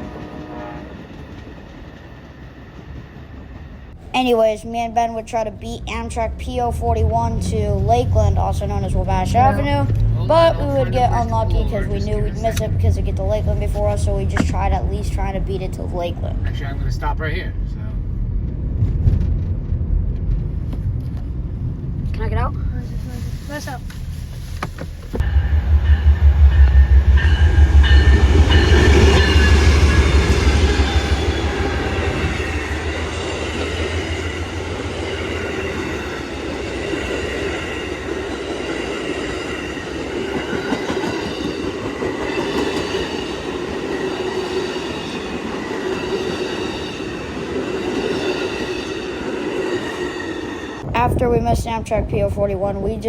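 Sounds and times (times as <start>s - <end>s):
train passing: 0.0s - 53.0s
heavy low rumble: 3.3s - 38.5s.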